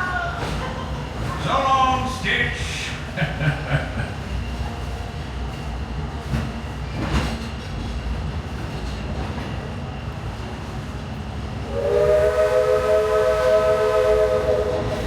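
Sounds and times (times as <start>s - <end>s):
train rumbling on rails: 0.0s - 15.0s
steam locomotive whistle: 11.7s - 15.0s.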